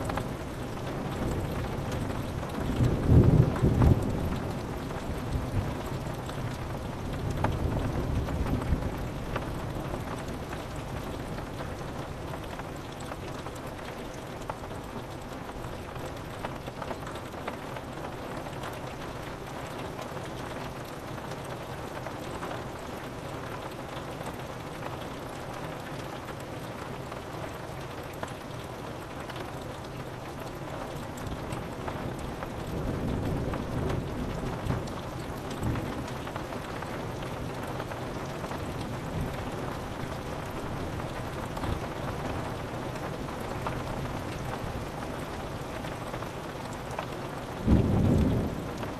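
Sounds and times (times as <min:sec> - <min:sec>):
rain pattering on a window: 0:00.0 - 0:48.9
thunder rumbling: 0:47.6 - 0:48.9.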